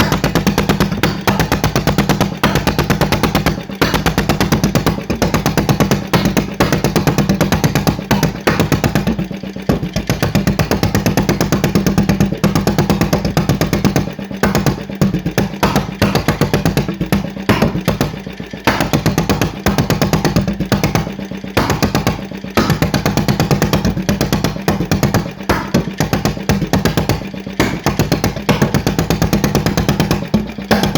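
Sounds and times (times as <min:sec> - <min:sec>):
stationary engine running fast: 0:00.0 - 0:30.9.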